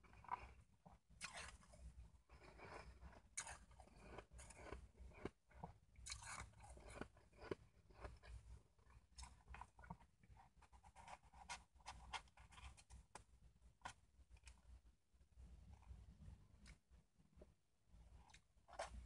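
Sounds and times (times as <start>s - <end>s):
crunching and chewing ice: 0.0s - 13.0s.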